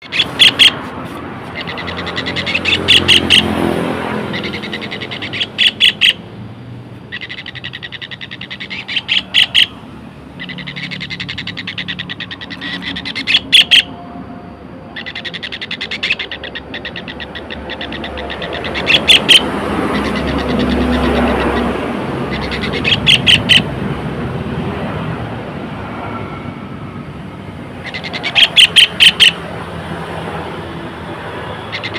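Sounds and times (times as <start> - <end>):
kingfisher rattling trills: 0.0 - 0.8, 1.4 - 6.3, 7.0 - 14.0, 14.9 - 23.8, 27.6 - 31.9
sharp chattering bird notes: 0.0 - 6.2, 7.1 - 13.9, 15.0 - 23.7, 27.8 - 29.4, 31.6 - 31.9.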